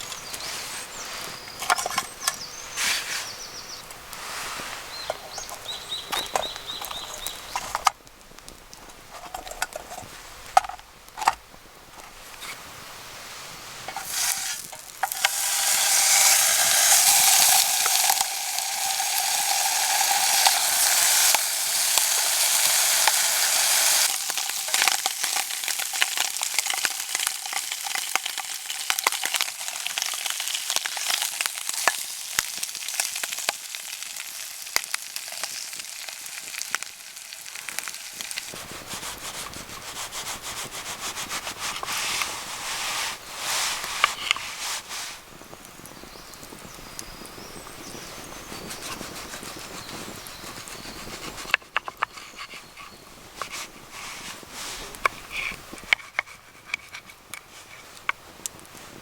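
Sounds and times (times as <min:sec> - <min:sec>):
food sizzling in a pan: 0:13.1 - 0:39.2.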